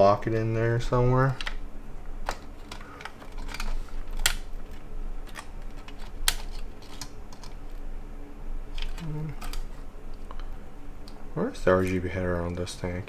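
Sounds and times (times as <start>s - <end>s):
cables and connectors rattling: 0.0s - 13.0s
plastic parts clicking: 1.3s - 1.6s, 2.2s - 7.8s, 8.6s - 10.5s.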